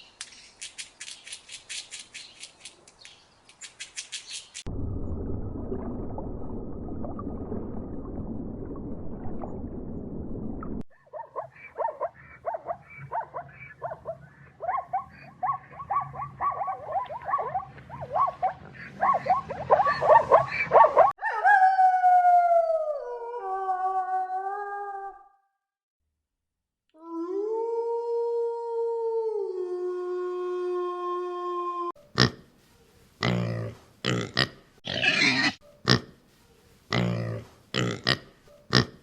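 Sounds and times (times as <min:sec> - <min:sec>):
howl-like animal call: 0:19.1 - 0:25.4, 0:27.0 - 0:32.0.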